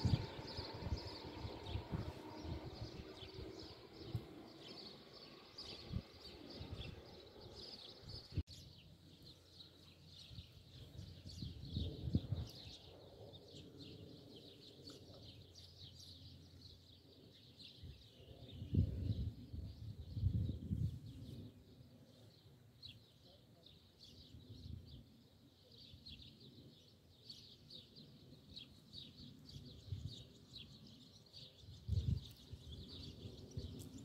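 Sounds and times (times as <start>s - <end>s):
low rumbling noise: 0.0s - 8.4s
small birds chirping: 0.0s - 34.0s.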